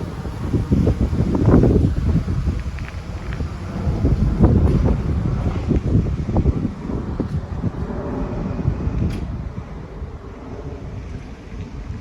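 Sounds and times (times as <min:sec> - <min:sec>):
airliner rumble and rushing air: 0:00.0 - 0:12.0.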